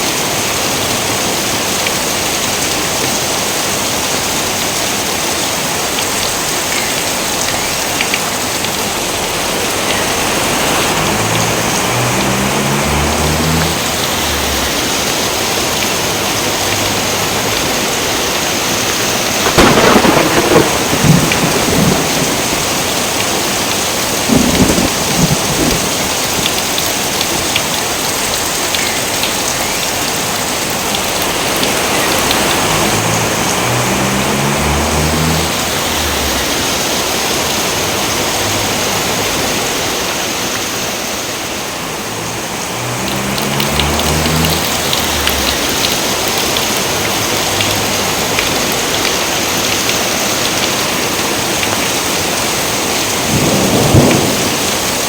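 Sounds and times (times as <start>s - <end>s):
heavy rain: 0.0s - 55.0s
crackling thunderclap: 19.3s - 27.7s, 31.0s - 39.9s, 43.0s - 50.7s, 52.8s - 55.0s.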